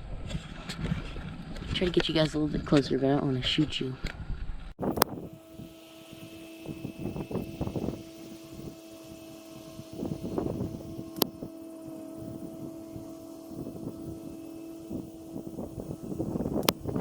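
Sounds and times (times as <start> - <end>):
distant small engine droning: 4.8 - 17.0.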